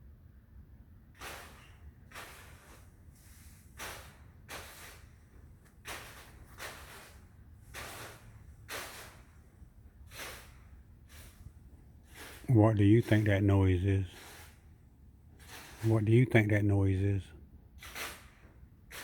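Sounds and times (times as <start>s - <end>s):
rake scraping a roof: 1.1s - 17.2s, 17.8s - 19.0s.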